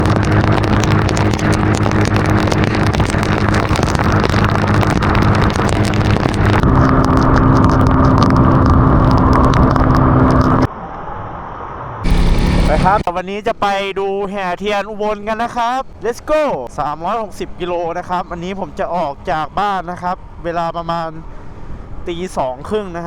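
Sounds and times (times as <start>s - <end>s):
car engine running: 0.0s - 10.7s, 12.0s - 13.1s
road noise: 0.0s - 13.2s, 15.0s - 23.0s.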